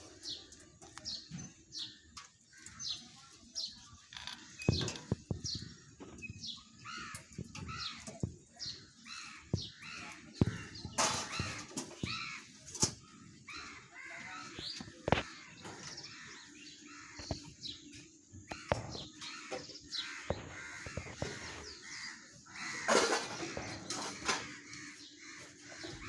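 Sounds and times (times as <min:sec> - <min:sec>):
parakeets squawking: 0:04.2 - 0:12.6, 0:18.5 - 0:25.1
sharp knocks: 0:18.5 - 0:21.7.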